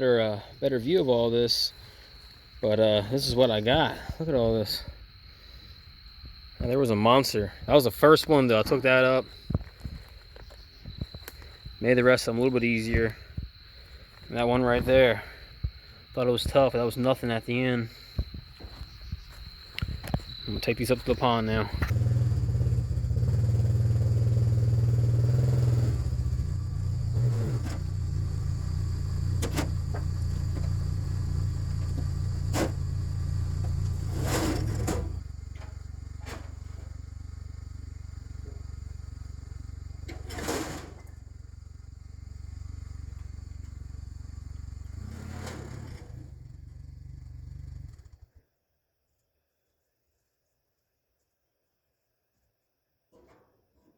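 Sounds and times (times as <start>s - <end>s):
atv engine running: 21.8s - 34.1s, 35.0s - 40.2s, 41.0s - 48.3s.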